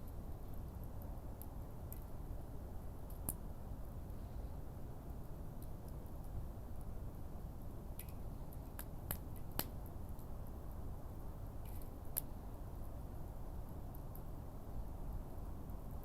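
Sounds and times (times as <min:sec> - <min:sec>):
low rumble of fire: 0:00.0 - 0:16.0
wood fire crackling and popping: 0:03.1 - 0:03.4, 0:07.9 - 0:10.8.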